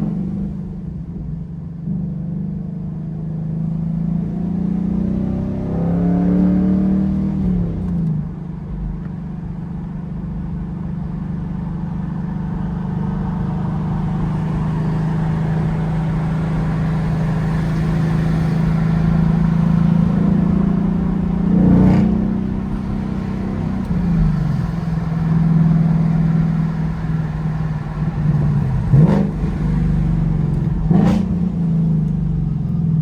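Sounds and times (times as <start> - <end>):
car engine revving: 3.8 - 8.3, 13.2 - 33.0.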